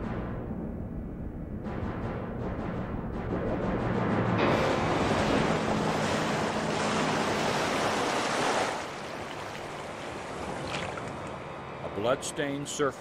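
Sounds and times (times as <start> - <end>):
seawater splashing and churning: 4.4 - 12.9.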